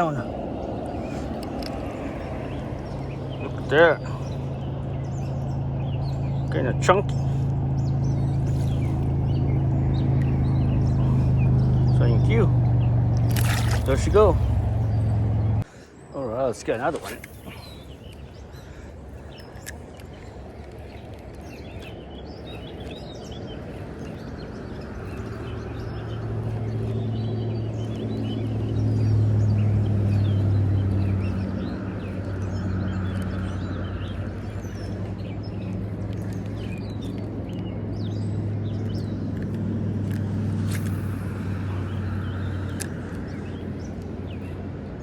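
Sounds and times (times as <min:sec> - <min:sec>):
vehicle engine humming: 0:00.0 - 0:15.7, 0:16.5 - 0:45.0
birds chirping: 0:00.0 - 0:45.0.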